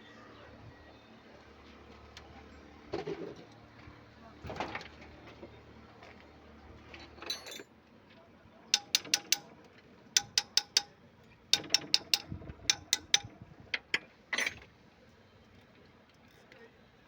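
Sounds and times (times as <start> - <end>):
ratchet wrench clicking: 8.8 - 9.5, 10.2 - 10.9, 11.6 - 13.3.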